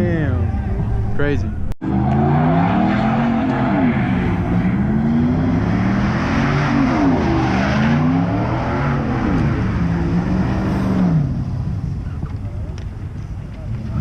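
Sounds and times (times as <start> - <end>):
car engine revving hard: 1.8 - 11.8.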